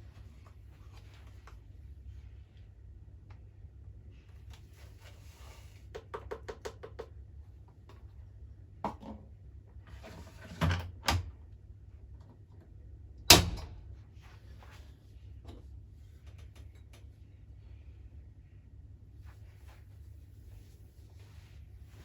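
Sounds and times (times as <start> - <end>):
steady low hum: 11.2 - 22.0
washing machine clicks: 13.3 - 13.9.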